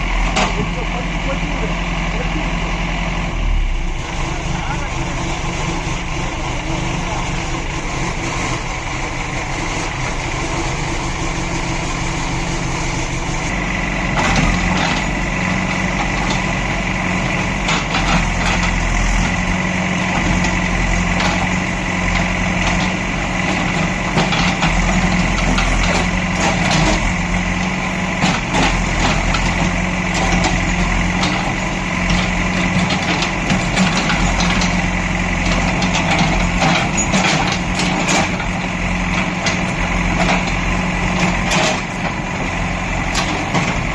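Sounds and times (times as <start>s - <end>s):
diesel engine running: 0.0s - 43.9s
knocks and clatter: 35.4s - 38.6s, 41.2s - 42.2s.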